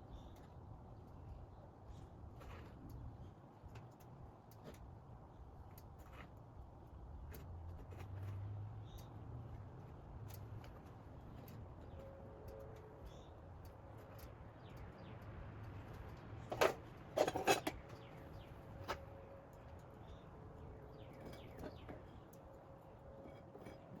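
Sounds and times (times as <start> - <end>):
metal tools clicking and clattering: 16.5 - 18.1.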